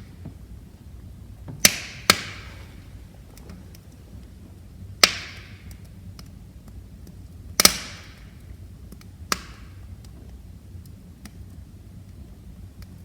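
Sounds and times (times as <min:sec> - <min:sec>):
low rumble of burning: 0:00.0 - 0:13.0
wood fire popping: 0:00.0 - 0:13.0.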